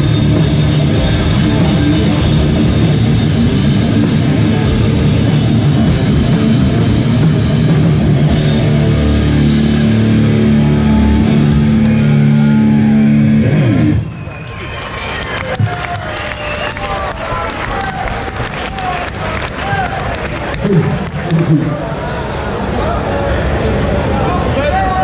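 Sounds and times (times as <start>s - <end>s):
live hardcore band playing: 0.0s - 14.2s.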